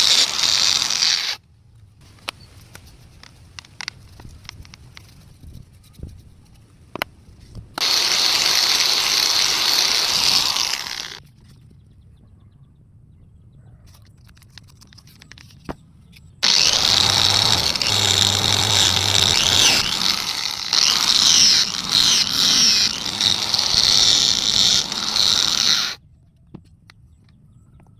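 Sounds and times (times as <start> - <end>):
electric sander running: 0.0 - 1.4, 7.8 - 11.2, 16.4 - 26.0.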